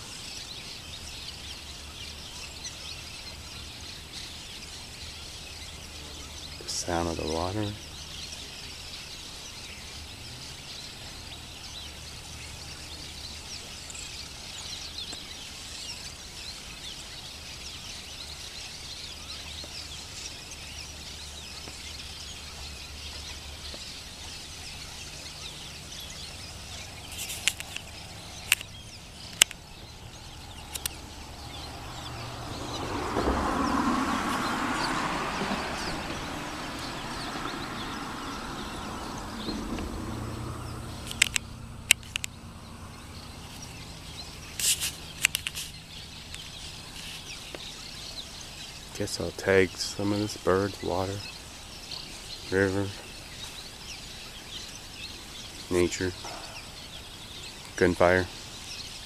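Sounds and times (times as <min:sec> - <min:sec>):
small birds chirping: 0:00.0 - 0:59.0
sharp cracks: 0:30.7 - 0:31.0, 0:41.0 - 0:42.4.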